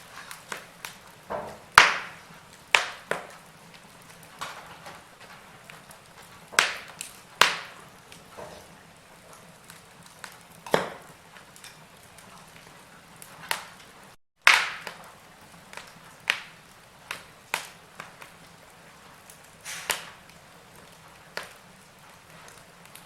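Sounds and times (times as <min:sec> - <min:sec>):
sharp pops of fire: 0:00.0 - 0:23.0
wood fire crackling: 0:00.0 - 0:23.0
logs hissing: 0:15.7 - 0:23.0.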